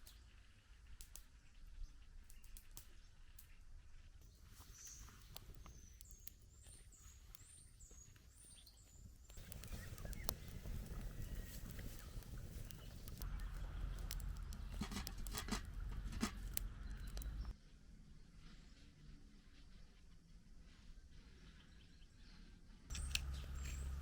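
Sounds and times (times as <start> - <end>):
bird calling: 4.3 - 17.5, 22.9 - 24.0
rustling with clicks and knocks: 9.3 - 17.5.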